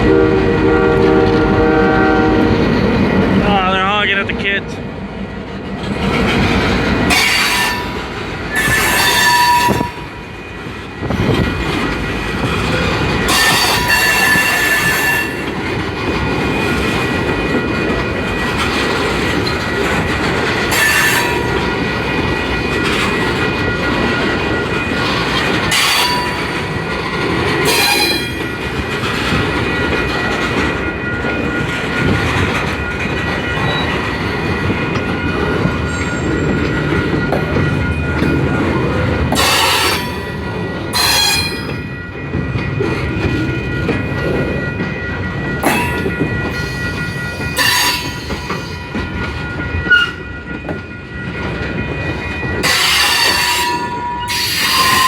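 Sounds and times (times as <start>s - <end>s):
freight train cars rumbling: 0.0s - 55.0s
wheels clacking over rail joints: 5.5s - 55.0s
high-pitched wheel squeals: 8.6s - 10.1s, 13.3s - 15.4s, 27.7s - 28.4s, 40.9s - 41.8s, 45.6s - 48.8s, 52.6s - 55.0s.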